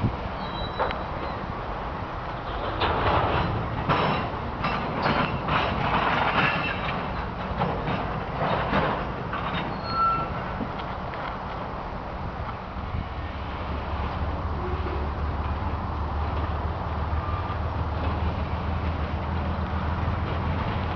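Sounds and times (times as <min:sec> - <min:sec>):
freight cars clanking on rails: 0:00.0 - 0:11.7, 0:13.5 - 0:20.9
high metallic squeal: 0:00.4 - 0:01.4, 0:09.6 - 0:10.4.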